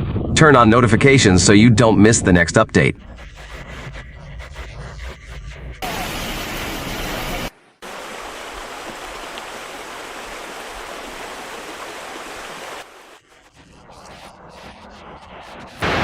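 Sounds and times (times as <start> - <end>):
flowing water rushing: 5.8 - 13.3.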